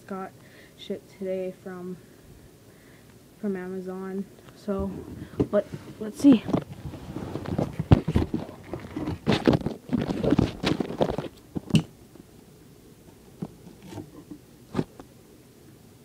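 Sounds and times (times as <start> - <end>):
package rustling and scraping: 5.0 - 11.8, 13.2 - 15.0.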